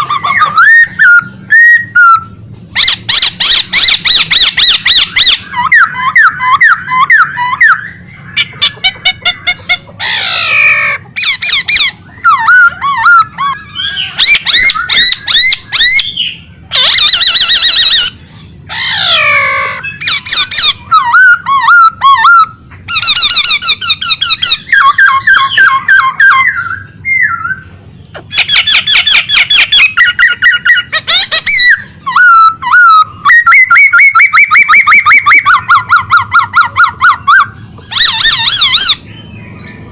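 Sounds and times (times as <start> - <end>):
songbird trilling and chirping: 0.0 - 39.9.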